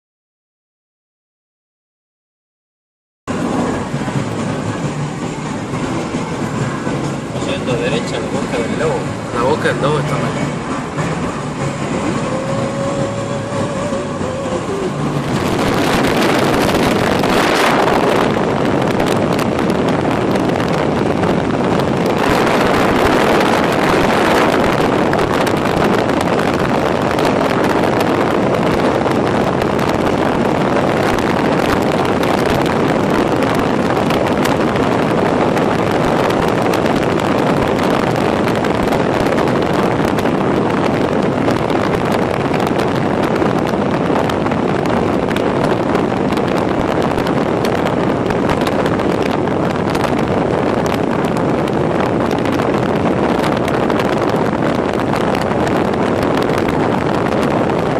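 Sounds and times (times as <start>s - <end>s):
wind and road noise in a car: 3.3s - 57.9s.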